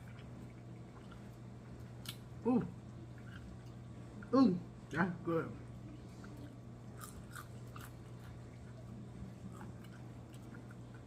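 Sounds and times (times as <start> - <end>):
chewing crunchy taco shell: 6.2 - 11.0.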